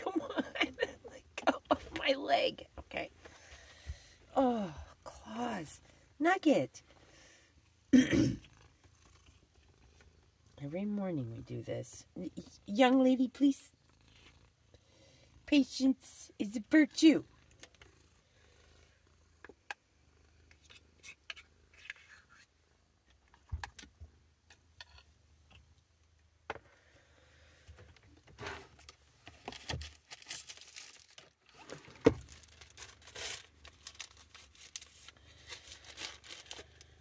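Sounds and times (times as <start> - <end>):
clicks and scrapes: 20.4 - 25.8
plastic bag crinkling: 29.4 - 37.0.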